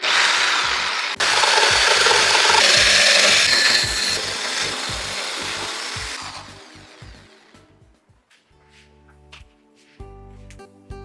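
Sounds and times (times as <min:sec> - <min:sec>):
motor saw cutting: 0:00.0 - 0:07.6.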